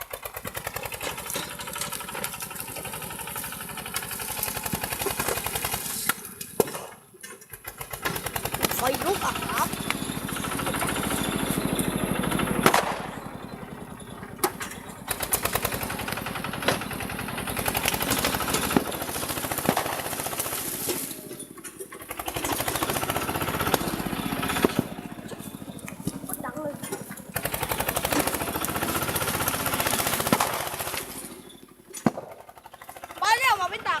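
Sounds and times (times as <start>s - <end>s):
tractor engine chugging: 0.0s - 34.0s
sharp cracks: 7.7s - 10.0s, 12.6s - 13.2s, 17.7s - 21.2s, 26.8s - 33.2s.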